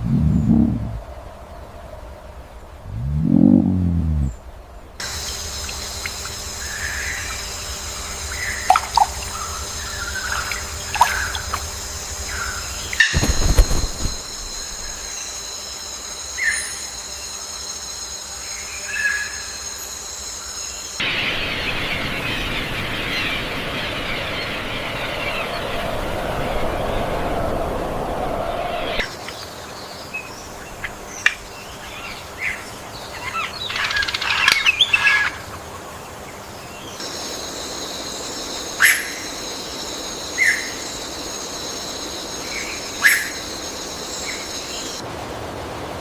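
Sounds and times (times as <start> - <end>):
high-pitched whine: 2.9 - 18.8
rushing hiss: 5.0 - 15.6.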